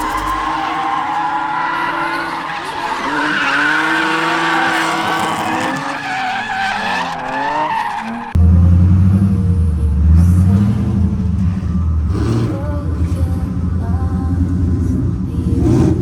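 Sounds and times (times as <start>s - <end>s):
tyres squealing: 0.0s - 8.4s
car engine revving: 0.0s - 16.0s.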